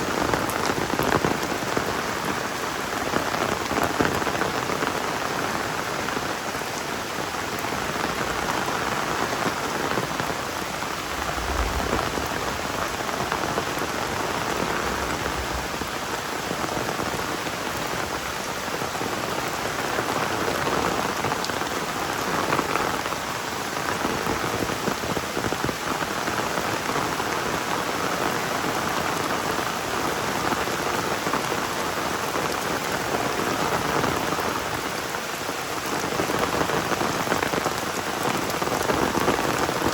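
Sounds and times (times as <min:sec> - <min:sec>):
heavy rain falling: 0:00.0 - 0:39.9
low rumbles: 0:10.2 - 0:16.4.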